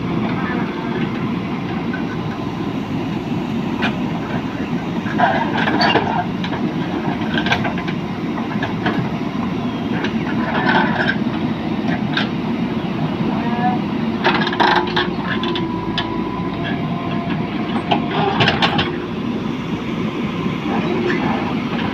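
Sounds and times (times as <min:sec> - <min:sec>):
diesel engine running: 0:00.0 - 0:21.9
machine knocks and clanks: 0:05.2 - 0:09.1, 0:14.2 - 0:19.0.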